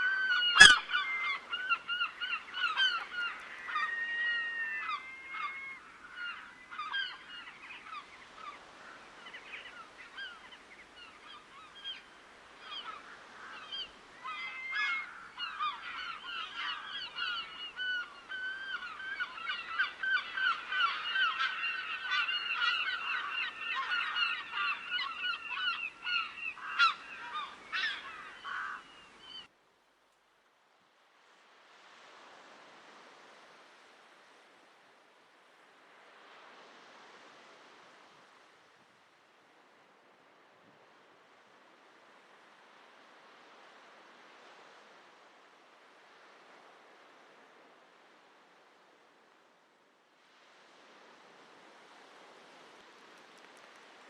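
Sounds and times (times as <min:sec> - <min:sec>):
water birds calling: 0:00.0 - 0:29.5, 0:50.4 - 0:54.0.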